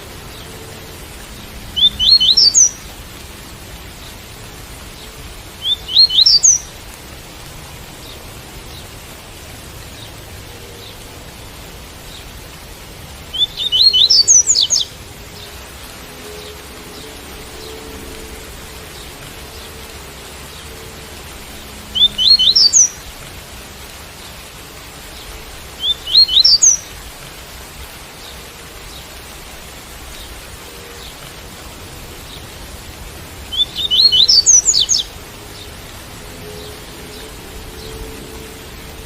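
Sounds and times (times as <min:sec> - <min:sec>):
hiss of rain: 0:00.0 - 0:39.0
bird singing high rising notes: 0:01.7 - 0:02.8, 0:05.6 - 0:06.7, 0:13.3 - 0:15.5, 0:21.9 - 0:23.1, 0:25.8 - 0:26.8, 0:33.5 - 0:35.1.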